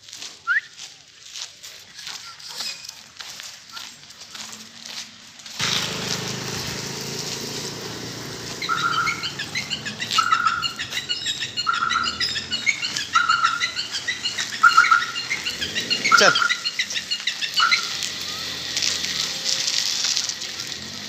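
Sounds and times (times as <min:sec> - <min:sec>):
small birds chirping: 0:05.6 - 0:21.0
bird short call: 0:08.6 - 0:18.4.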